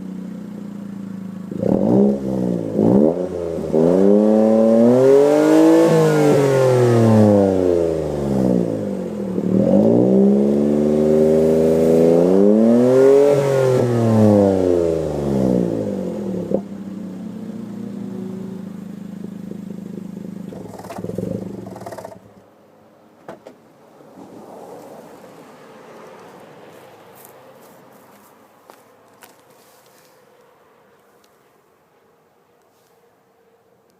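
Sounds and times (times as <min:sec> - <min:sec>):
car engine revving and idling: 0:00.0 - 0:22.5.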